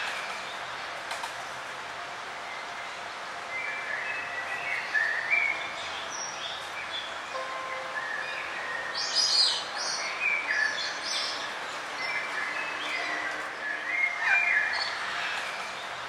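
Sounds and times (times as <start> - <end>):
steady background hiss: 0.0 - 16.0
birds chirping and trilling: 3.6 - 16.0.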